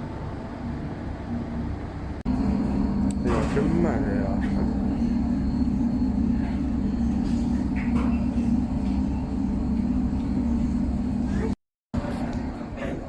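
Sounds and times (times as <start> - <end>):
ferry engines rumbling: 0.0 - 13.0.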